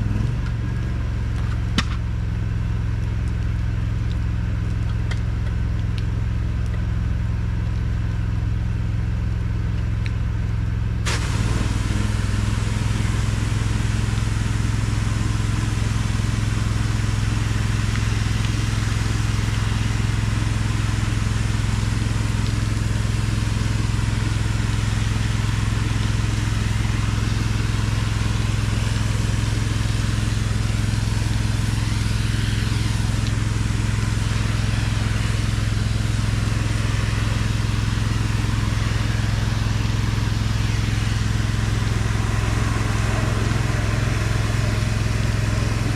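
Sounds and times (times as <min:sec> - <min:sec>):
gas engine running: 0:10.5 - 0:45.9
loud spray hiss: 0:11.1 - 0:45.9.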